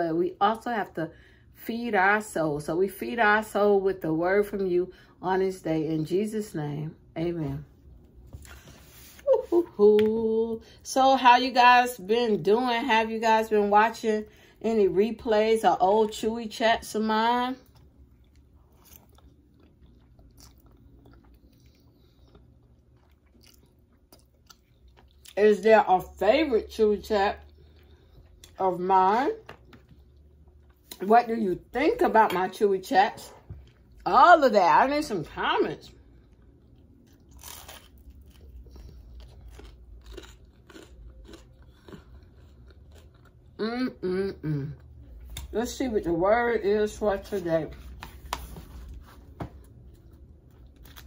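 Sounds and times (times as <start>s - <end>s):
faint chewing: 17.6s - 25.4s, 27.3s - 28.6s, 33.3s - 34.0s, 35.9s - 43.7s.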